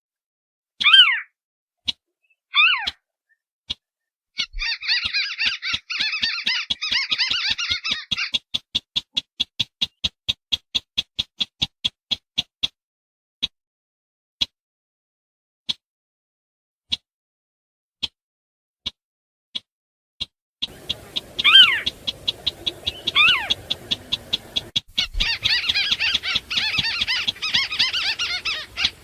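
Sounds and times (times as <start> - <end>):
sharp bird ticks: 3.7 - 12.8, 19.6 - 29.0
crake calls sliding downward: 4.4 - 9.2, 20.6 - 29.0
fast chattering bird calls: 4.4 - 11.7, 20.6 - 29.0.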